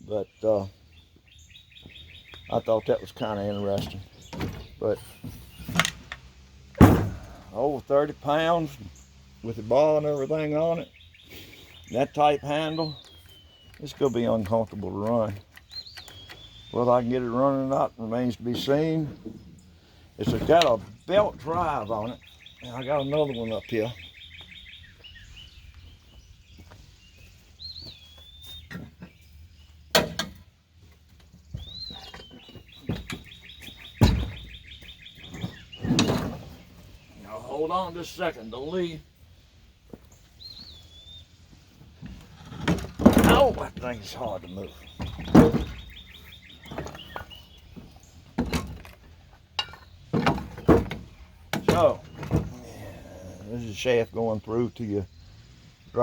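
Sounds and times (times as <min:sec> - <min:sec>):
songbirds singing: 0:00.0 - 0:56.0
sharp clunks: 0:03.7 - 0:07.6, 0:29.9 - 0:30.4, 0:31.6 - 0:36.7, 0:42.0 - 0:43.9, 0:44.7 - 0:52.6
chainsaw knocking and clunking: 0:49.6 - 0:52.6.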